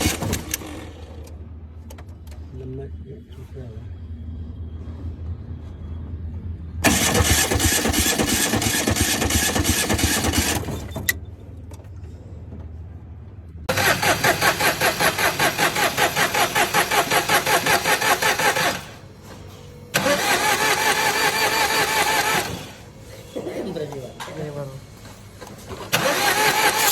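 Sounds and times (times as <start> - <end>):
car engine cranking: 0.0 - 2.5, 6.8 - 12.1, 13.7 - 19.1, 19.9 - 23.0, 25.8 - 26.9.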